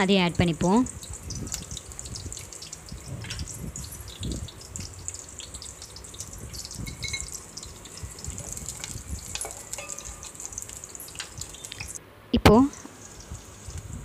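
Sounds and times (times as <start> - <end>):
vegetables sizzling in hot oil: 0.0 - 14.0
spatula stirring in a pan: 0.9 - 12.0.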